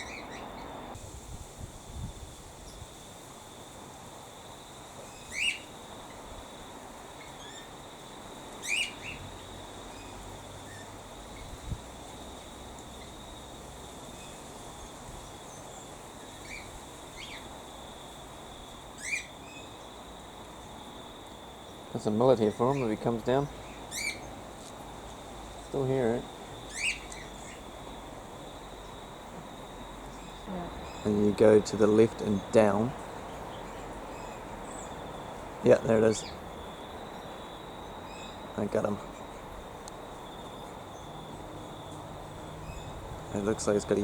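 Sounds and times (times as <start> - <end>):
cockatiels calling: 0.0 - 0.7, 5.1 - 5.7, 8.6 - 9.3, 19.0 - 19.7, 22.5 - 24.3, 26.7 - 27.6.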